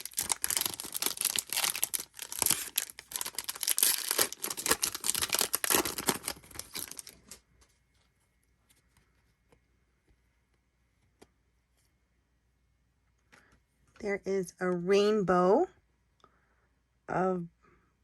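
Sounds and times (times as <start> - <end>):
plastic wrapper tearing and crinkling: 0.0 - 7.4.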